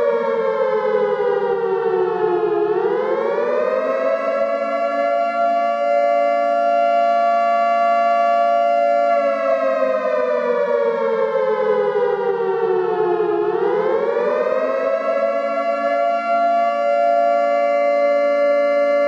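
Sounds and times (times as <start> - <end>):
warning siren wailing: 0.0 - 19.0.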